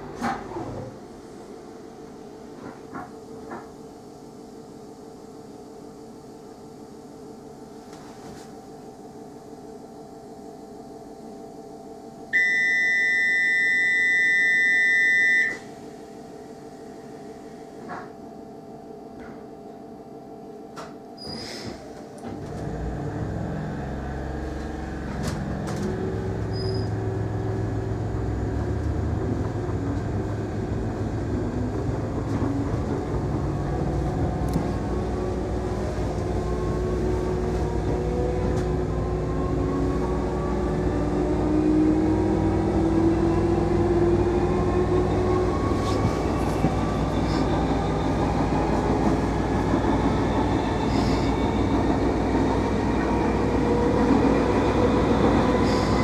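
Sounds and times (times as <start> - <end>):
train motors and wheels rumbling: 0.0 - 12.2, 15.6 - 56.0
train hum: 0.0 - 13.7, 14.4 - 21.0, 21.6 - 56.0
door warning buzzer: 12.4 - 15.6.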